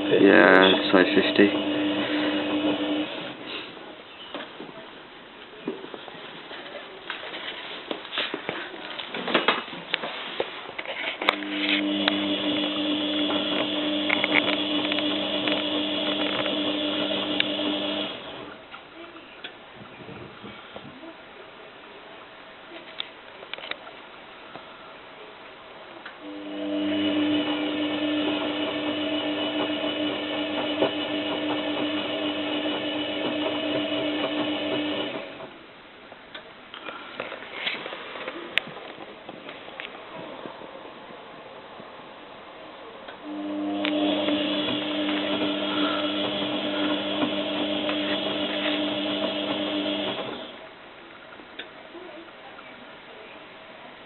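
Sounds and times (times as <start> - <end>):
washing machine motor hum: 0.0 - 3.4, 11.4 - 18.6, 26.2 - 35.7, 38.4 - 50.8.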